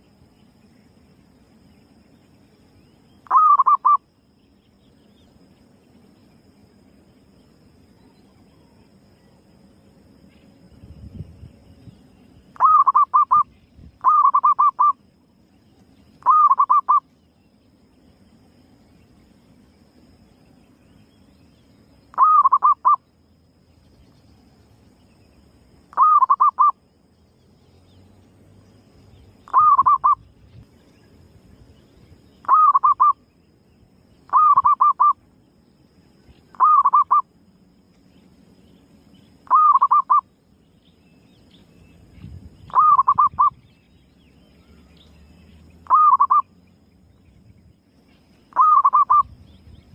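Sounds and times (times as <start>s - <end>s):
dove cooing with warbling trill: 3.2s - 4.0s, 12.6s - 15.0s, 16.2s - 17.0s, 22.1s - 23.0s, 25.9s - 26.8s, 29.5s - 30.2s, 32.4s - 33.2s, 34.3s - 35.2s, 36.5s - 37.2s, 39.4s - 40.2s, 42.6s - 43.6s, 45.8s - 46.5s, 48.5s - 49.4s.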